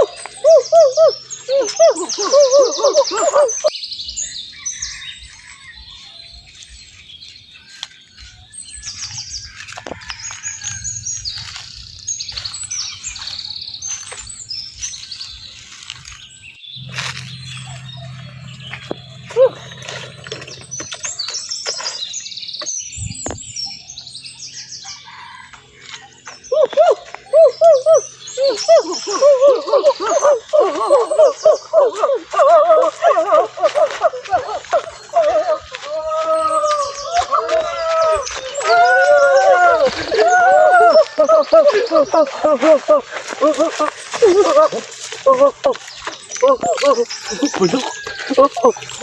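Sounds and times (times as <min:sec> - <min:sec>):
wavering bird call: 0:00.0 - 0:03.7, 0:16.8 - 0:21.3, 0:26.4 - 0:49.0
small birds chirping: 0:00.0 - 0:49.0
steady low hum: 0:16.8 - 0:21.3.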